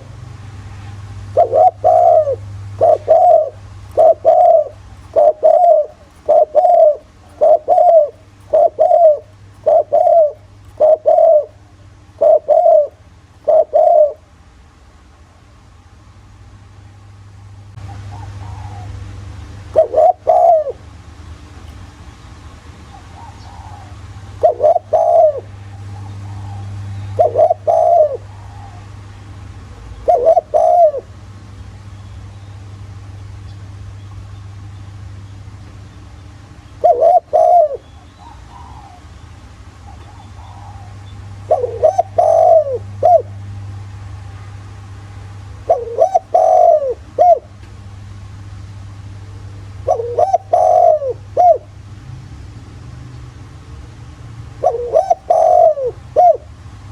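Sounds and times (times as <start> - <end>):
faint low hum: 0.0 - 56.9
dove cooing: 0.8 - 14.4, 17.8 - 21.0, 22.5 - 31.3, 36.8 - 43.4, 45.5 - 47.7, 49.8 - 51.8, 54.6 - 56.9.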